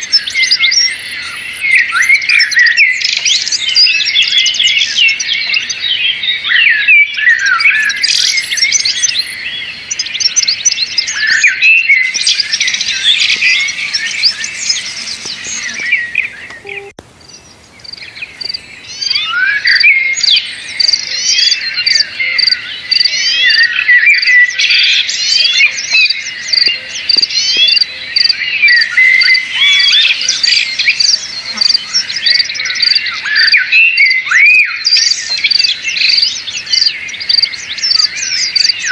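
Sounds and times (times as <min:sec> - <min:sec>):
many birds chirping: 0:00.0 - 0:38.9.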